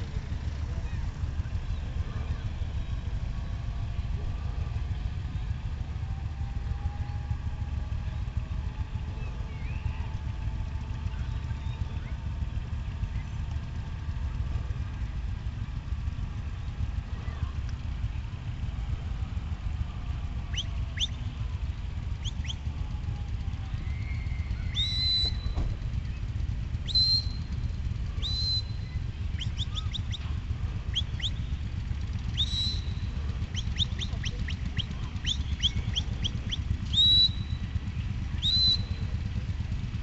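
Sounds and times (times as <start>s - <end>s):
bird chirping: 23.9s - 27.6s, 28.2s - 30.3s, 30.9s - 39.2s.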